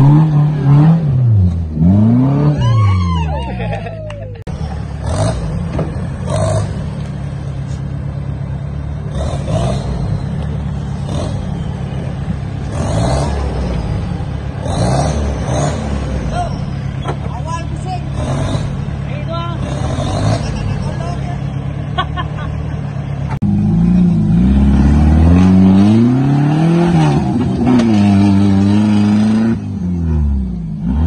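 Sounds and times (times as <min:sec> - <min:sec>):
off-road engine revving hard: 0:00.0 - 0:03.7, 0:04.5 - 0:07.4, 0:08.7 - 0:17.0, 0:17.7 - 0:22.5, 0:23.4 - 0:31.0.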